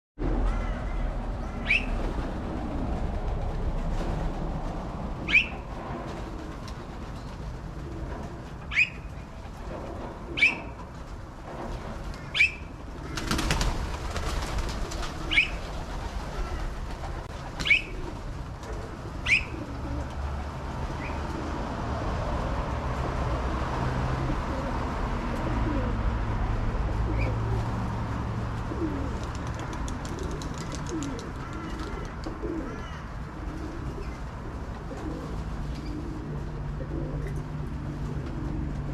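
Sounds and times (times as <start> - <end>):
pigeons cooing: 5.2 - 11.0, 12.1 - 21.8, 23.0 - 26.2, 26.8 - 27.7, 28.6 - 38.9
flurry of wings: 12.0 - 19.7, 28.9 - 32.4.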